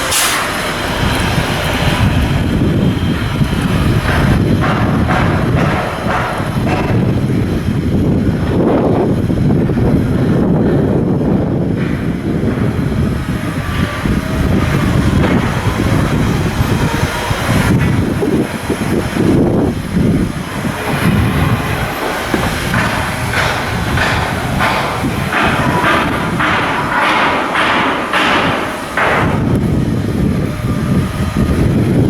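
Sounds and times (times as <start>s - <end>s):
mechanical rumble: 0.0s - 32.0s
sharp knocks: 4.0s - 7.3s, 20.8s - 29.9s.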